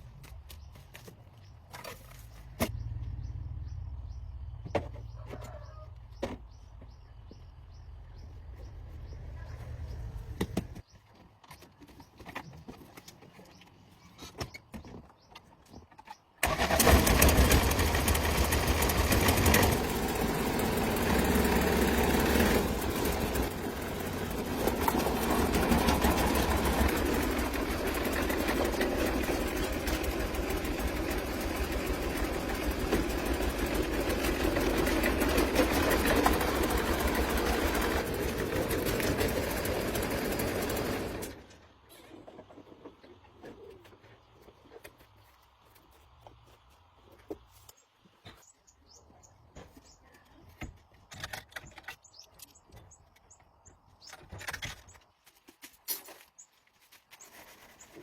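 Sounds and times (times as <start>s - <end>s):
diesel engine starting and running: 2.4s - 5.8s, 16.4s - 42.2s.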